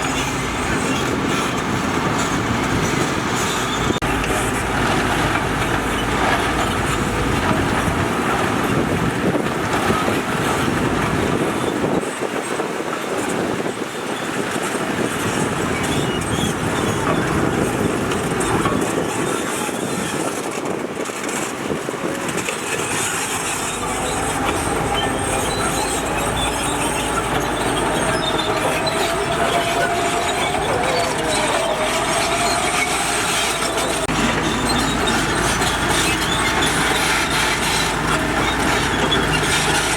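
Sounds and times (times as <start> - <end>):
diesel engine under load: 0.0 - 39.9
steel tracks clanking and squealing: 0.0 - 39.9
wavering whine: 22.8 - 36.4.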